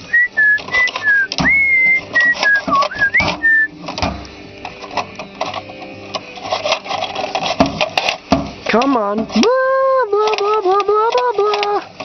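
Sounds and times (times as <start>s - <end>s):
person whistling a tune: 0.0s - 3.8s.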